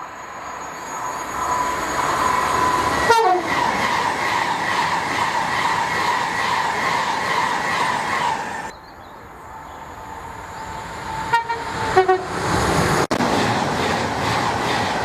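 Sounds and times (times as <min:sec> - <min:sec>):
train passing: 0:00.0 - 0:15.0
train horn: 0:03.0 - 0:03.6, 0:11.2 - 0:12.4.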